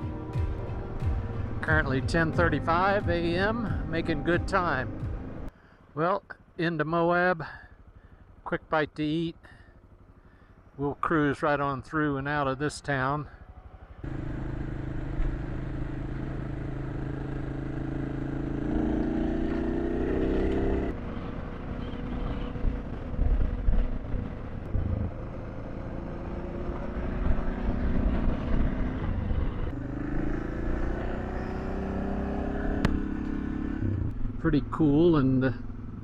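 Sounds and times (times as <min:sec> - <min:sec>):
motorcycle engine accelerating: 0:13.3 - 0:36.0
wind noise: 0:21.0 - 0:25.6, 0:26.8 - 0:29.8.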